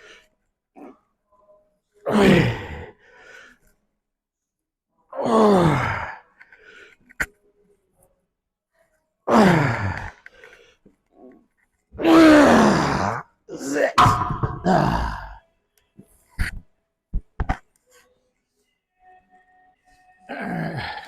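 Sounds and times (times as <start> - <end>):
man groaning with effort: 12.0 - 15.4.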